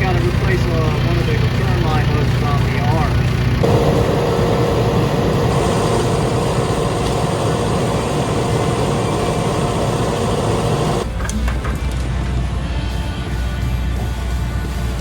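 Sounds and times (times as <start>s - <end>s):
heavy diesel engine rumble: 0.0s - 11.2s
constant whine: 0.0s - 15.0s.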